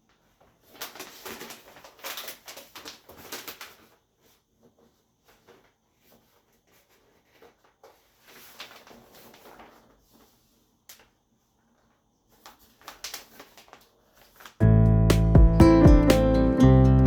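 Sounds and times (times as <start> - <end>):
acoustic guitar music: 14.6 - 17.0.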